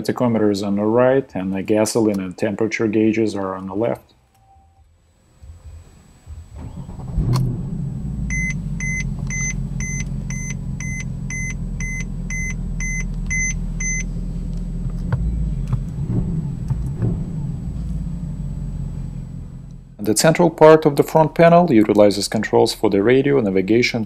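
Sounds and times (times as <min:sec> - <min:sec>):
car engine starting and idling: 0:05.4 - 0:24.0
dashboard warning chime beeping: 0:08.2 - 0:14.2, 0:15.0 - 0:16.0.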